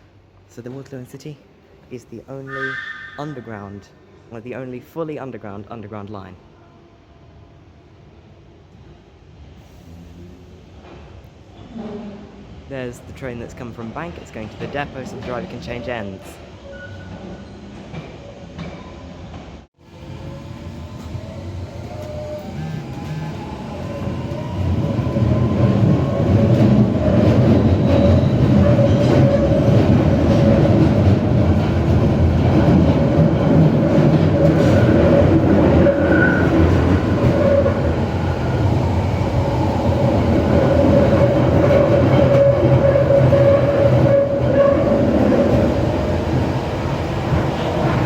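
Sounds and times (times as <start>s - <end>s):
train rumbling: 8.4s - 48.0s
steady squeal: 34.5s - 38.5s.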